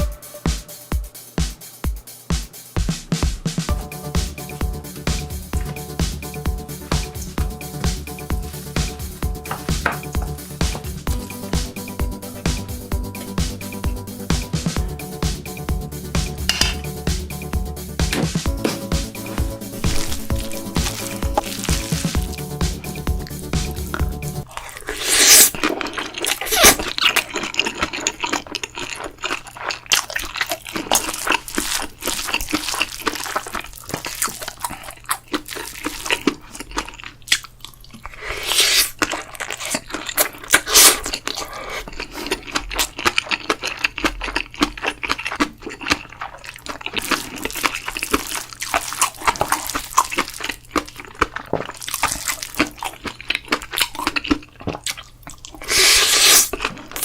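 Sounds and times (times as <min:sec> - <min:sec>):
wet chewing and crunching: 0:05.1 - 0:11.7, 0:18.0 - 0:57.0.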